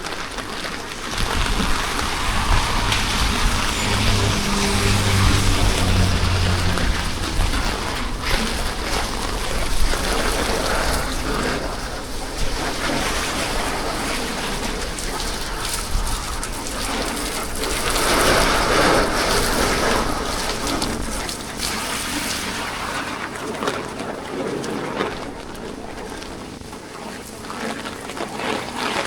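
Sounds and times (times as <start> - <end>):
steady rain falling: 0.0 - 11.4.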